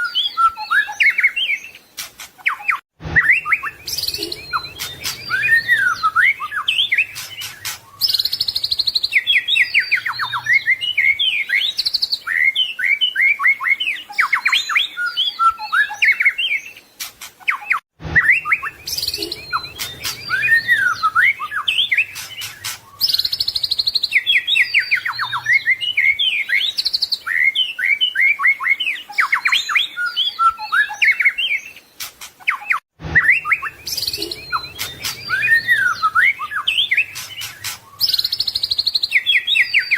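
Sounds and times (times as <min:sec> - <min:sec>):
songbird singing varied song: 0:00.0 - 0:39.9.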